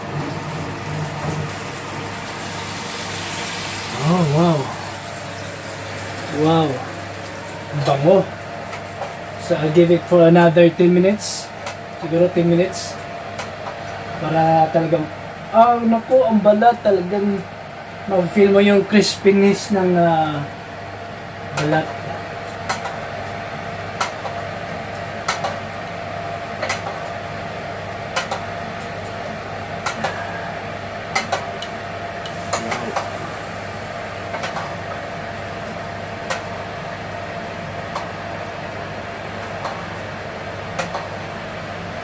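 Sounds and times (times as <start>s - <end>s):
oven hum: 0.0s - 42.0s.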